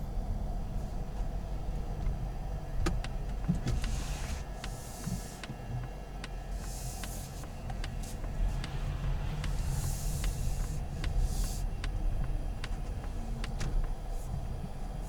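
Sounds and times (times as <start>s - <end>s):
low cabin rumble: 0.0s - 15.0s
hiss: 3.8s - 5.4s, 6.5s - 11.7s.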